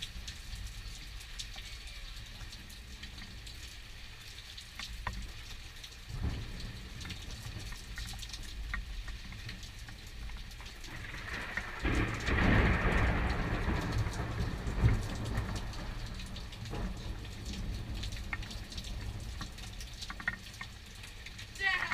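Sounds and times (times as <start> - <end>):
rain falling: 0.0 - 21.9
thunder rumbling: 6.1 - 7.8, 10.8 - 20.0.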